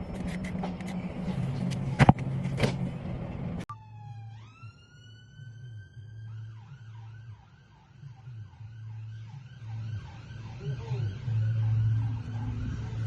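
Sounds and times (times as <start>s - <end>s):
emergency vehicle siren: 3.6s - 13.0s.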